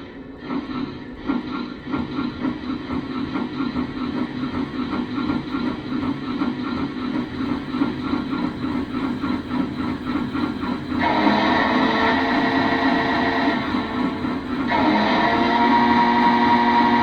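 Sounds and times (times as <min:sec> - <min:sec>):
rhythmic steam chuff: 0:00.0 - 0:17.0
multi-note steam whistle: 0:10.6 - 0:17.0.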